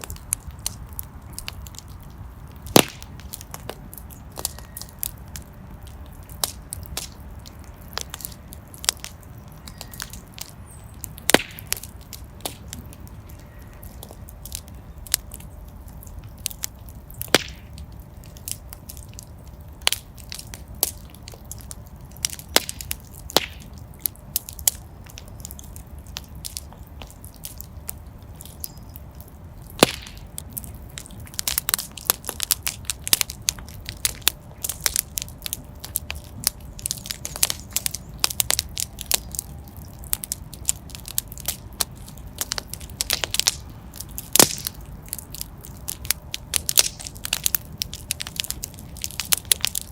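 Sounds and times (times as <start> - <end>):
wood fire crackling and popping: 0.0 - 49.9.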